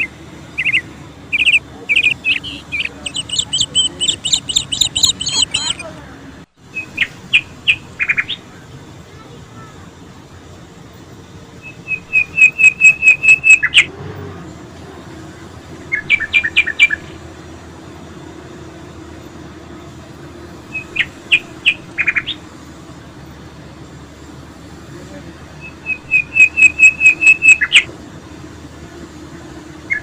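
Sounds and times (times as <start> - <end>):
songbird chirping: 0.0 - 5.9, 11.6 - 13.9, 15.8 - 17.4, 20.6 - 22.5, 25.5 - 27.9.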